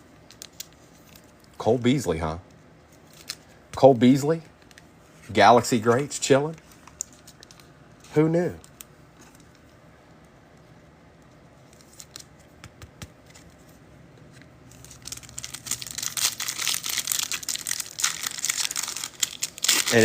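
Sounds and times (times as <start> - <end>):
wrapper crinkling and tearing: 14.7 - 20.0.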